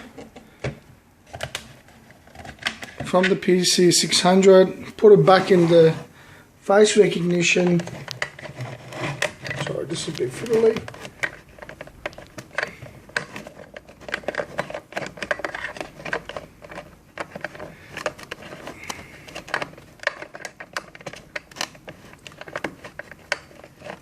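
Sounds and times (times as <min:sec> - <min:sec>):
plastic plug clicks and rattles: 0:10.4 - 0:24.0.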